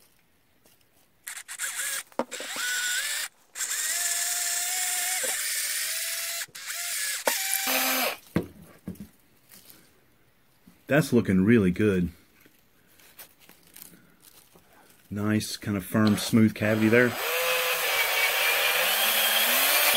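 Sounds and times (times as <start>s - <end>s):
power drill whining: 1.2s - 8.2s, 16.0s - 19.9s.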